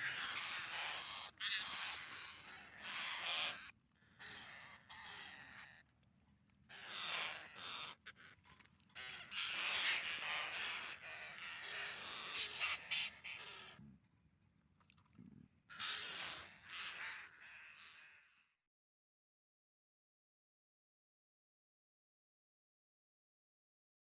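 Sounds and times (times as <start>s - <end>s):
parakeets calling: 0.0s - 5.8s, 6.7s - 8.3s, 9.0s - 13.8s.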